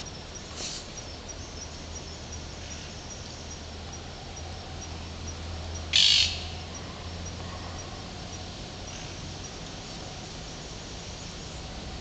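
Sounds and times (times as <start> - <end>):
faint high ticking: 0.0 - 11.3
harsh bird squawk: 5.9 - 6.6.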